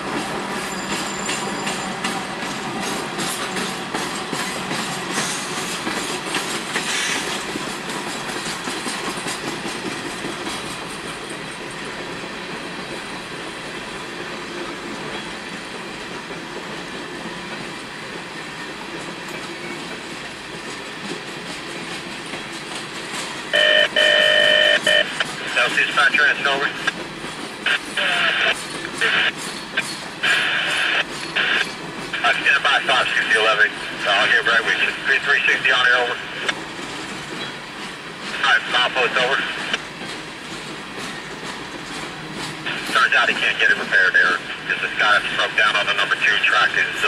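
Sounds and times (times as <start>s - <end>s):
train rolling rumble: 0.0s - 47.0s
loud steady tone: 23.5s - 26.9s, 27.7s - 29.3s, 30.2s - 33.6s.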